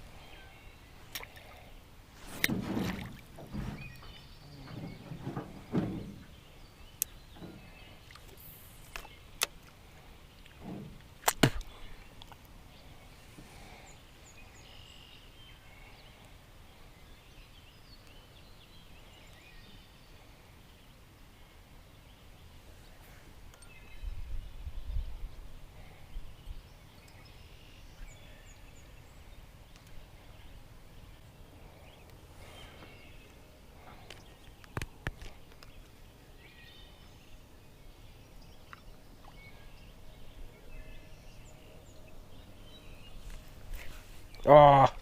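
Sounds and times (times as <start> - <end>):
handling thuds and rustling in boat: 2.2 - 8.4, 10.5 - 12.0.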